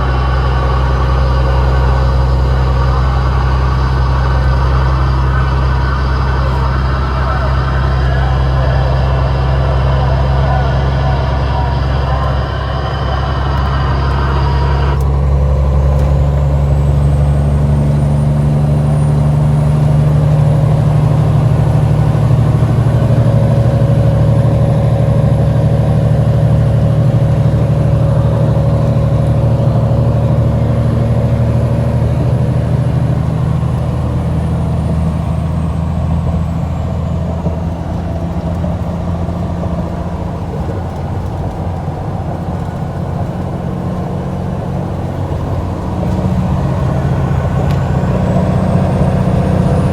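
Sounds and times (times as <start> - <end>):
road noise: 0.0 - 49.9
truck diesel engine running: 0.0 - 49.9.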